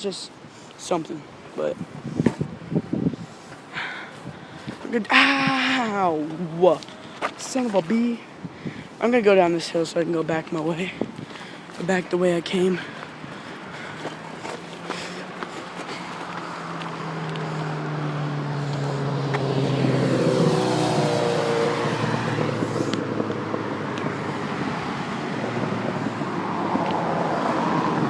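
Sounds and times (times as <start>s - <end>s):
vehicle passing by: 10.7s - 28.0s.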